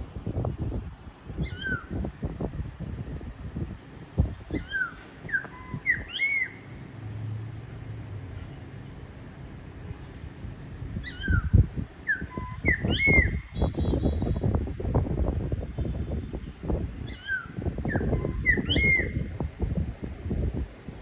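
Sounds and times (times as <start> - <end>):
songbird whistling: 1.4 - 2.0, 4.5 - 6.7, 11.0 - 14.2, 17.1 - 19.3.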